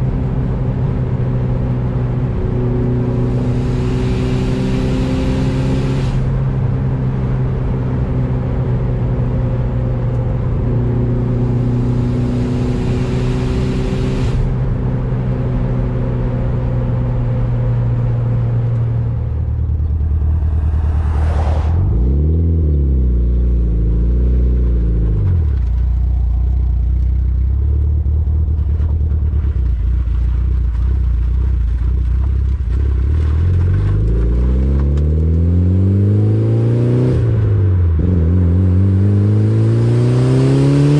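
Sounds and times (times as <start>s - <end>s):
car engine driving: 0.0s - 40.9s.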